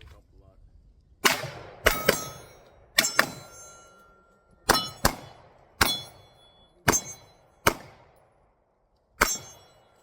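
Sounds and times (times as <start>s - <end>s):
pistol shots: 1.2s - 3.8s, 4.7s - 8.5s, 9.2s - 10.0s
steel targets ringing: 1.8s - 7.7s, 9.2s - 10.0s.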